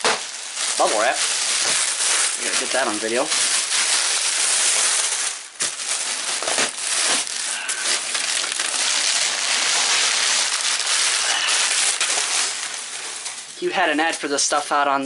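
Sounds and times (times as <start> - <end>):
bubble wrap crinkling: 0.0 - 14.6.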